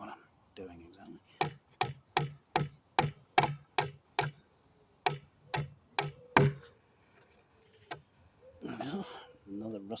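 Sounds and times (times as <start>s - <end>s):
hammer striking nail: 1.4s - 4.4s, 5.0s - 6.6s.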